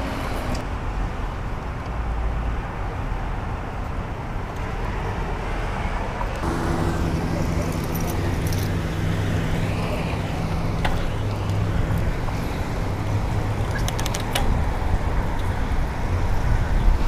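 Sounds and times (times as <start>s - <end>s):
vehicle engine humming: 0.0s - 17.0s
sharp clicks: 13.6s - 14.6s.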